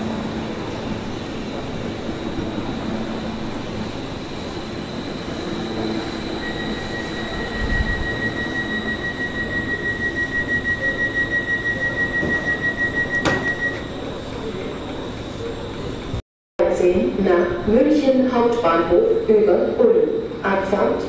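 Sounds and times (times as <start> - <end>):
train rumbling: 0.0 - 16.2
high-pitched wheel squeal: 0.4 - 16.1.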